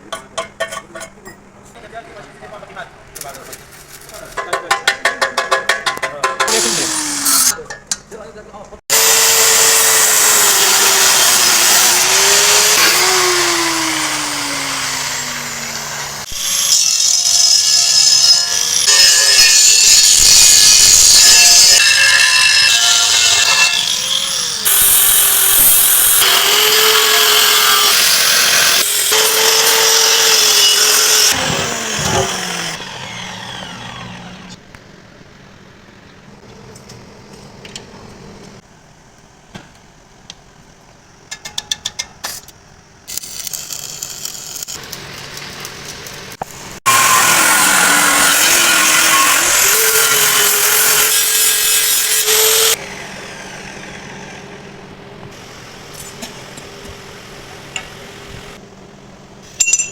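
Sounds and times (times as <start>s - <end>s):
handheld power tool on steel: 6.5s - 7.6s, 8.9s - 34.6s, 43.1s - 54.6s.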